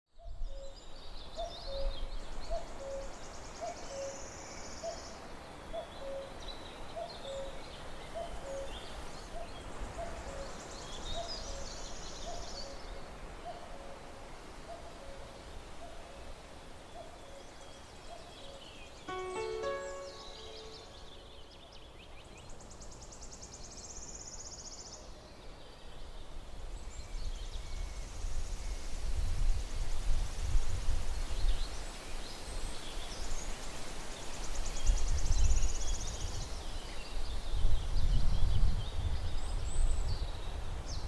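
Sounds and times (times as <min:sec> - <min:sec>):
low two-note hooting call: 0:19.1 - 0:21.3
high bird chirps: 0:19.1 - 0:21.4.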